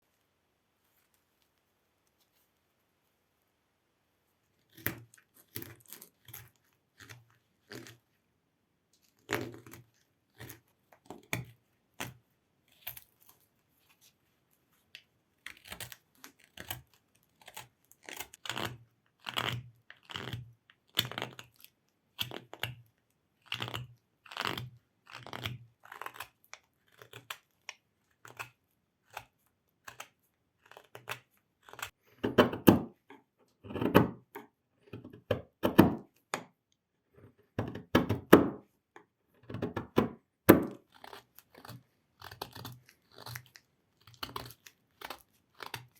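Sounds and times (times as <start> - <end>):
carving tool cutting into wood: 23.5 - 36.5, 39.4 - 45.9.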